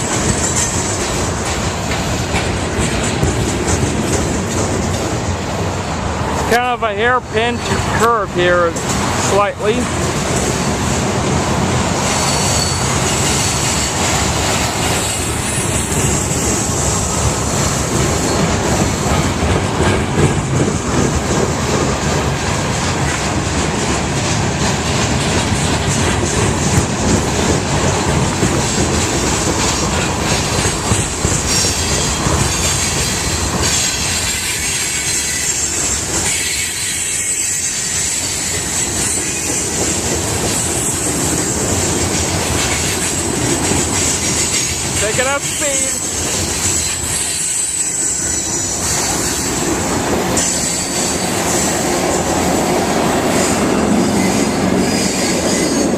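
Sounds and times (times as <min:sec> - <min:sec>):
train wheels rumbling on rails: 0:00.0 - 0:55.9
high wheel squeal: 0:12.0 - 0:16.7, 0:17.7 - 0:19.0, 0:31.4 - 0:39.9, 0:44.0 - 0:52.4, 0:53.3 - 0:55.9.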